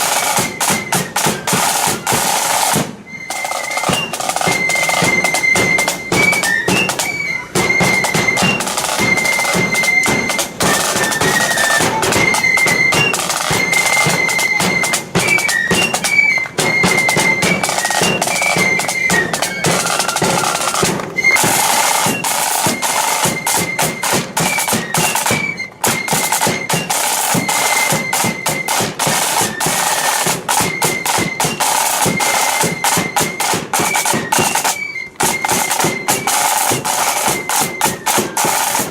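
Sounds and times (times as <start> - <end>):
high flute melody: 0.0 - 38.9
snare drum rolls: 0.0 - 38.9.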